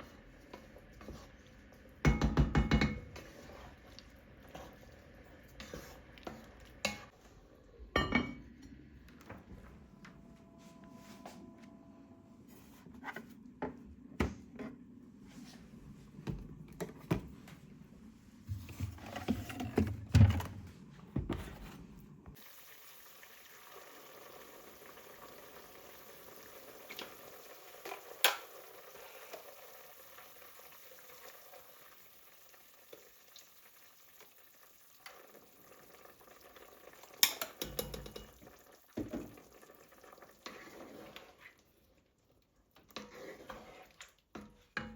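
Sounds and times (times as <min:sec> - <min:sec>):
food sizzling in a pan: 0:22.4 - 0:41.6
utensils and dishes clinking: 0:37.2 - 0:38.4.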